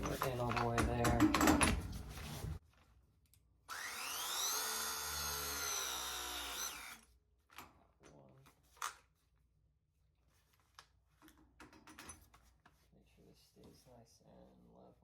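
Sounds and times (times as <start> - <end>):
press tool motor whining: 3.7 - 7.0.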